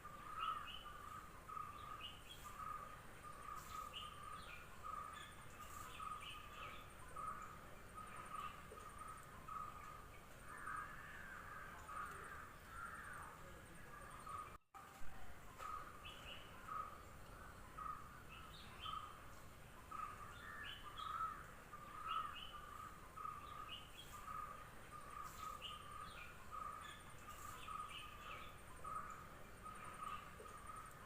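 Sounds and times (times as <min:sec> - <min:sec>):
birds chirping: 0:00.0 - 0:14.6, 0:15.3 - 0:31.0.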